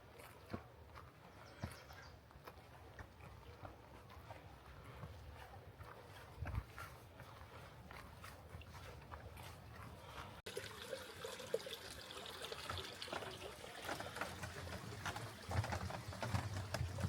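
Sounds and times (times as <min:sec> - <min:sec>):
water trickling: 0:09.4 - 0:17.0.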